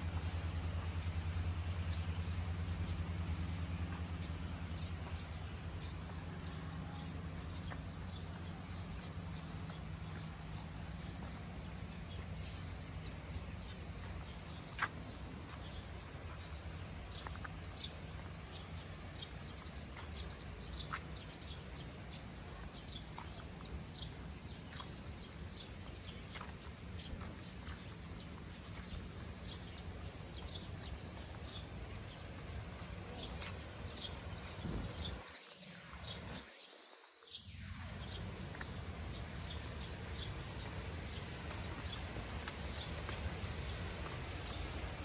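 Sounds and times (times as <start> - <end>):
low steady rumble: 0.0 - 35.2, 37.5 - 45.0
birds chirping: 0.0 - 45.0.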